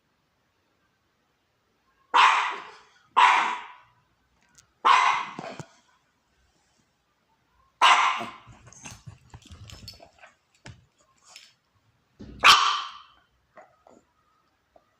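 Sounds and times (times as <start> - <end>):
faint small sounds: 0.0 - 14.9
puppy barking: 2.1 - 3.9, 4.8 - 5.6, 7.8 - 8.7, 12.4 - 13.2.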